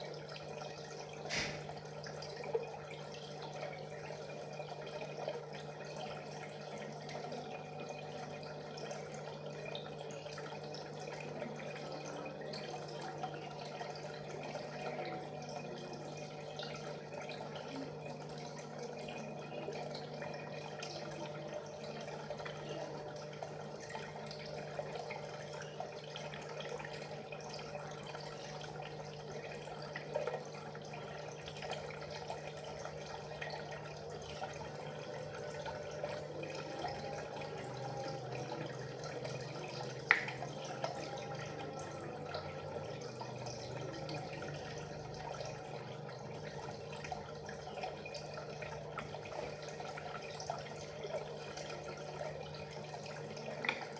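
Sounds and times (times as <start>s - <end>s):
water trickling and bubbling: 0.0s - 53.9s
low motor hum: 30.7s - 53.9s.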